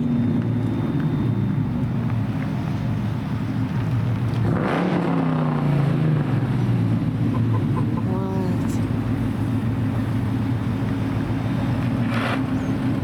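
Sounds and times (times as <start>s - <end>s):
car engine revving: 4.0s - 13.0s.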